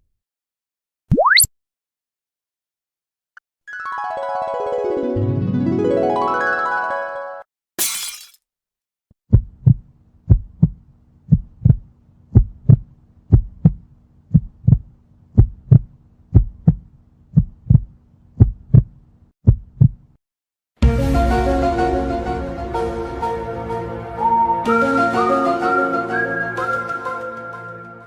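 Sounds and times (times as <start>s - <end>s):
heartbeat thumps: 9.3s - 20.1s.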